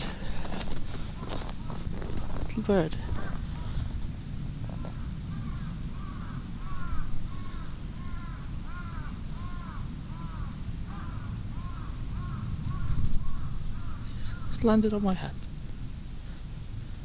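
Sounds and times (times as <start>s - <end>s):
low outdoor rumble: 0.0s - 17.0s
crow cawing: 3.4s - 3.9s, 4.8s - 14.6s
small birds chipping: 4.8s - 16.9s.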